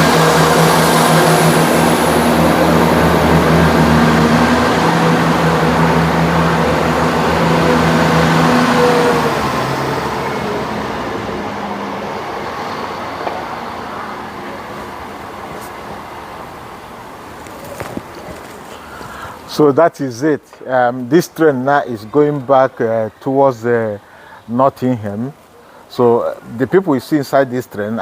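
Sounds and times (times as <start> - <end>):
train engine drone: 0.0 - 19.6.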